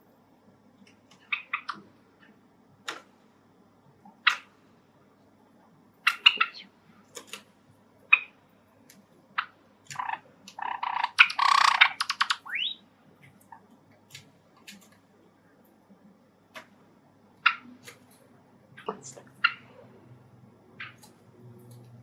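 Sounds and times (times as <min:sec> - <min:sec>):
harsh squawking calls: 0:09.9 - 0:12.8
sparrows chirping: 0:09.9 - 0:12.8
small clicks: 0:20.8 - 0:22.0.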